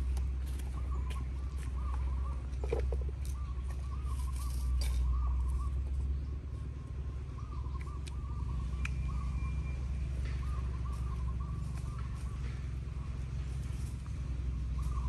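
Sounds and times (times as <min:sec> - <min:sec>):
bird warbling calls: 0:00.5 - 0:13.4, 0:14.6 - 0:15.0.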